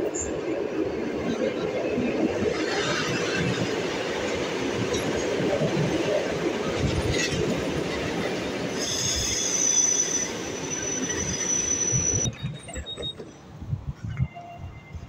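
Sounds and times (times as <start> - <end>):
train wheels rumbling: 0.0 - 14.2
high steady squeal: 8.7 - 13.4.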